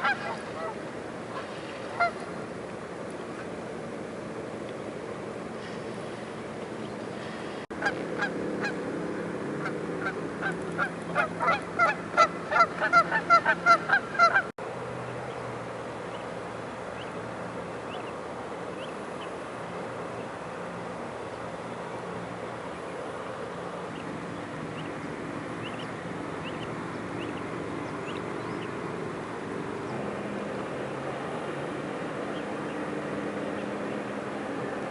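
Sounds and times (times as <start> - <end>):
geese honking: 0.0 - 2.4, 7.8 - 8.8, 9.6 - 14.5.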